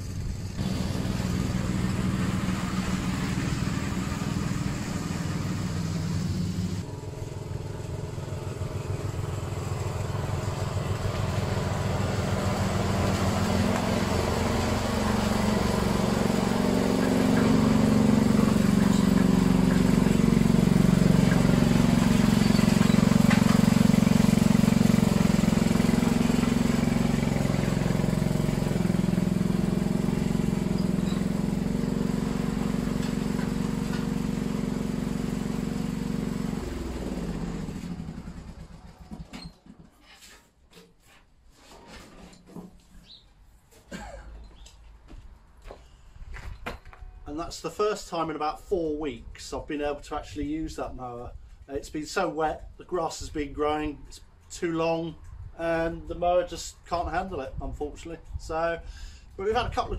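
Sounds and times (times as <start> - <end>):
lawn mower cutting grass: 0.0 - 39.6.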